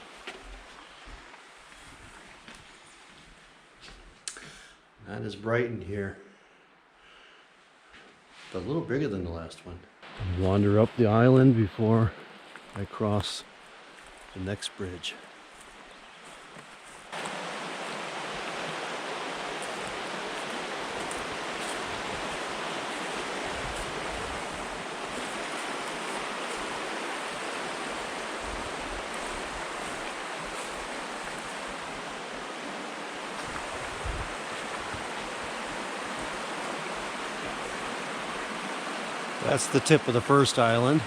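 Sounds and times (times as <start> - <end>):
river rapids rushing: 17.1 - 41.0.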